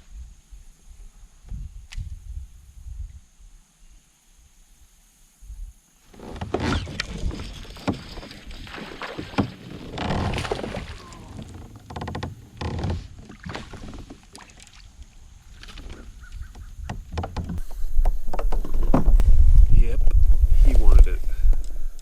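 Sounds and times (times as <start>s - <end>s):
water splashing around kayak: 6.1s - 20.9s
knocks against hull: 6.2s - 14.8s, 15.6s - 19.2s.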